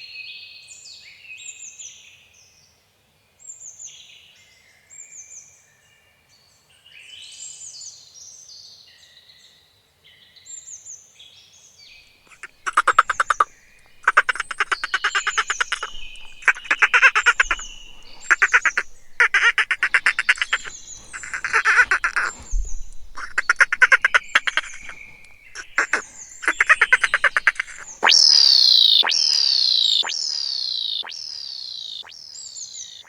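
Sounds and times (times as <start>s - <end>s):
frog croaking trills: 12.3s - 32.1s
faint high chirps: 12.3s - 32.2s
loud falling whistle tones: 12.4s - 32.1s.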